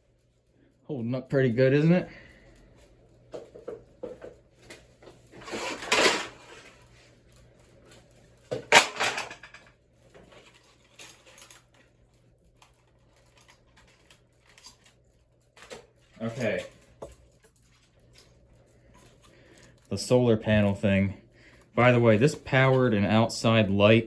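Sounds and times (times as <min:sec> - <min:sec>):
scraping rattle of fan parts: 0:05.2 - 0:07.1.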